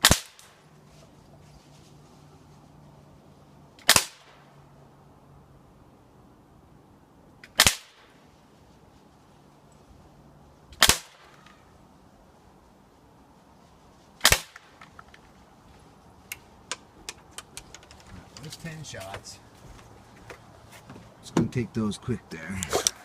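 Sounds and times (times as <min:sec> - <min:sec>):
pistol shots cracking: 0:00.0 - 0:00.6, 0:03.8 - 0:04.4, 0:07.5 - 0:08.0, 0:10.8 - 0:11.4, 0:14.2 - 0:14.8.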